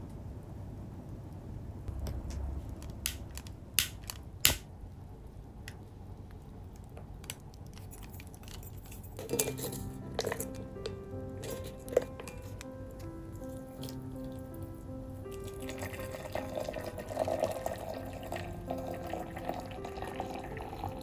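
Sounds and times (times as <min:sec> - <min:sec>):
small hard objects clinking: 0:07.8 - 0:12.6
soft background music: 0:07.8 - 0:21.0.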